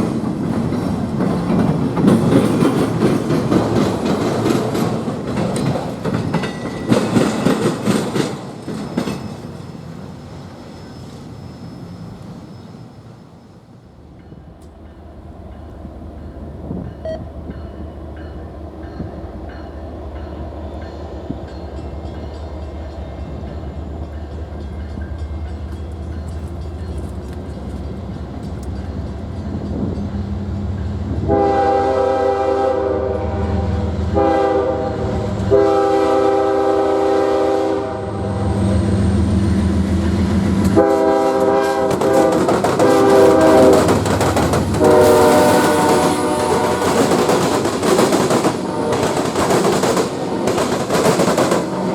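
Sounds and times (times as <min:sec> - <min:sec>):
train rumbling: 0:00.0 - 0:51.9
locomotive air horn blasts: 0:31.2 - 0:38.6, 0:40.7 - 0:44.0, 0:44.8 - 0:47.0, 0:48.6 - 0:49.4.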